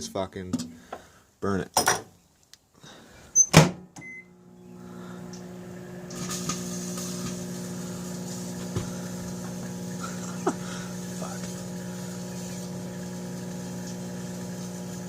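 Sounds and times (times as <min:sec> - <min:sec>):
microwave beep: 0:03.4 - 0:04.8
microwave humming: 0:04.0 - 0:15.0.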